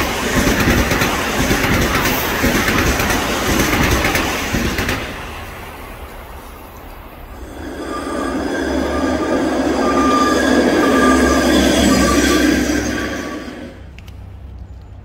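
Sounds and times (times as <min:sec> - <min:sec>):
train wheel and rail noise: 0:00.0 - 0:15.0.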